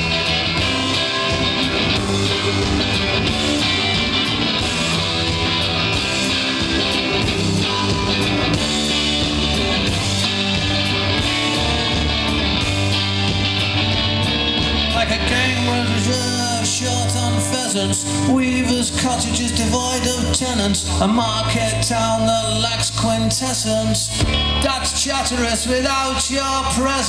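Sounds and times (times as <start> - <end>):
live rock band playing: 0.0 - 27.0.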